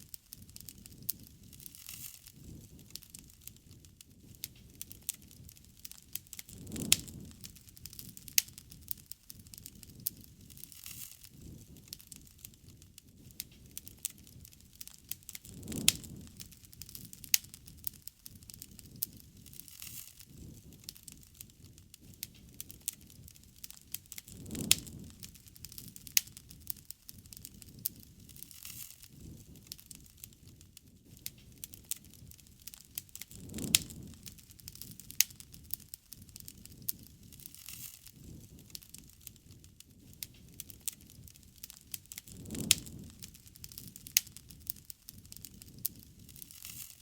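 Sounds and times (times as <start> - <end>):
campfire crackling: 0.0 - 47.0
low rumble of flames: 0.0 - 47.0
sharp fire pops: 0.0 - 47.0.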